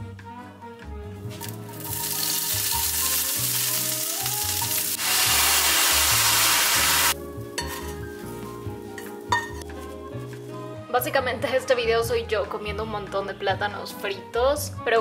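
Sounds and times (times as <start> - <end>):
sauce poured into hot pan: 1.4 - 7.2
tofu sizzling in oil: 1.4 - 7.2.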